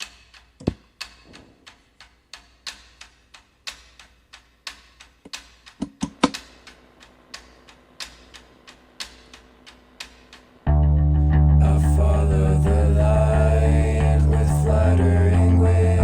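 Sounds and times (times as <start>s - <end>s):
dry ticking clicks: 0.0s - 10.7s
faint low hum: 6.0s - 16.0s.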